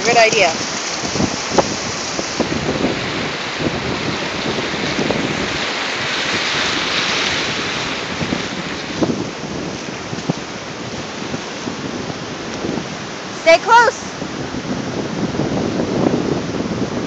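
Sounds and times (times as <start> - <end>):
ocean surf breaking: 0.0 - 17.0
wind buffeting microphone: 0.0 - 17.0.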